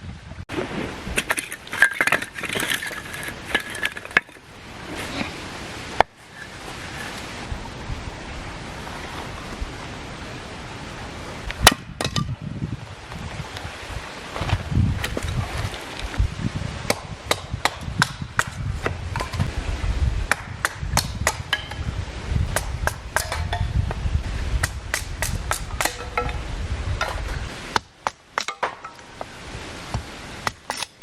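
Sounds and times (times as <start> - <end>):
sharp irregular knocks: 20.3 - 21.9, 22.5 - 23.8, 24.6 - 29.0.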